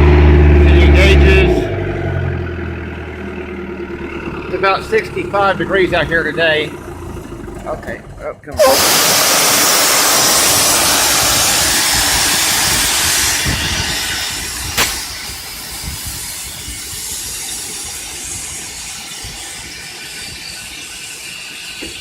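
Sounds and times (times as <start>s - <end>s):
diesel engine running: 0.0s - 17.0s
compressed air hissing: 8.6s - 22.0s
sharp click: 14.8s - 15.2s.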